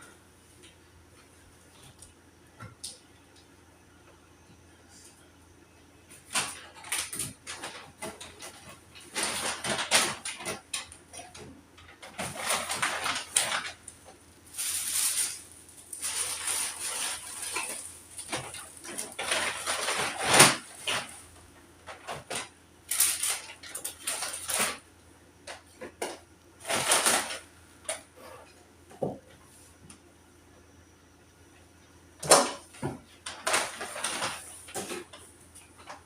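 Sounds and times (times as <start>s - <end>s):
rustling and clattering objects: 6.1s - 30.0s, 32.2s - 36.0s.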